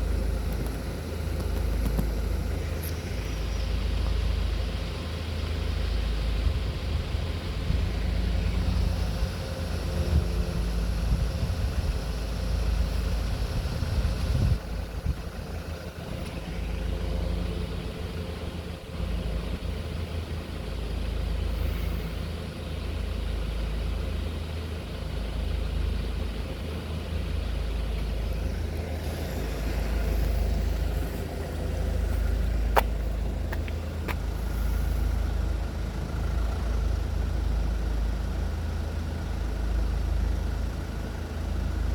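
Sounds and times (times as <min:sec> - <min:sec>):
vehicle engines rumbling: 0:00.0 - 0:41.9.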